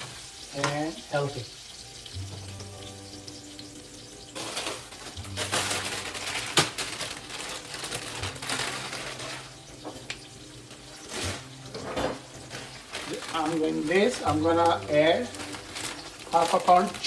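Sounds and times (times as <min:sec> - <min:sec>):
potatoes sizzling in oil: 0:00.0 - 0:17.0
scraping in a pan: 0:04.3 - 0:10.0.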